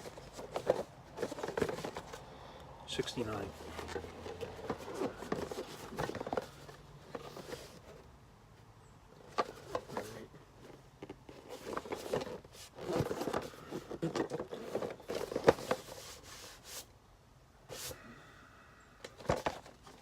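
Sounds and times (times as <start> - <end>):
cardboard packaging being handled: 0.0 - 2.3, 3.0 - 8.1, 9.2 - 16.9.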